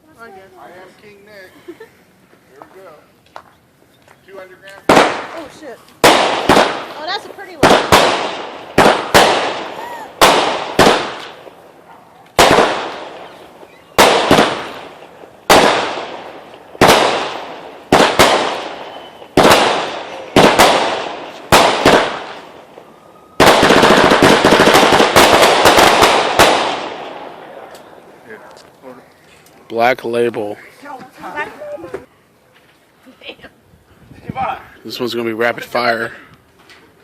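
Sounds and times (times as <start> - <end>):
firework reports with crackling: 4.2 - 28.9.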